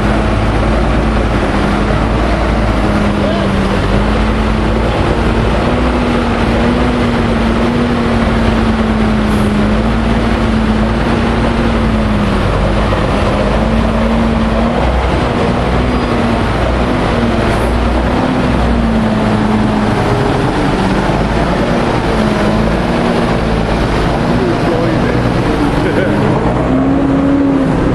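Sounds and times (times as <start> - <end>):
truck diesel engine running: 0.0 - 27.9.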